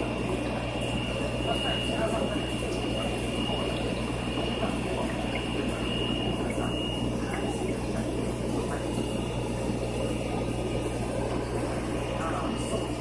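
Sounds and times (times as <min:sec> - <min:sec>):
low pump hum: 0:00.0 - 0:13.0
water trickling and bubbling: 0:00.0 - 0:13.0.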